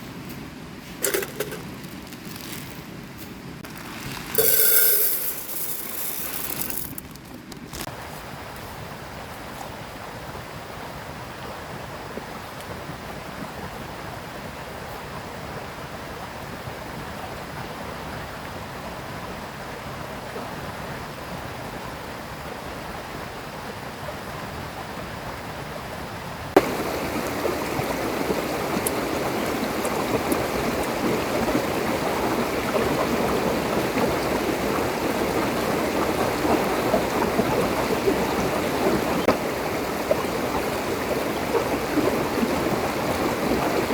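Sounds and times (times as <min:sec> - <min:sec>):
river water rushing: 0:26.6 - 0:43.9.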